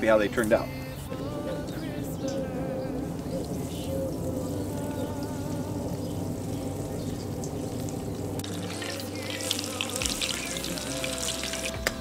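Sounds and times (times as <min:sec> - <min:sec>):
background music: 0:00.0 - 0:12.0
potato balls frying and crackling: 0:03.1 - 0:12.0.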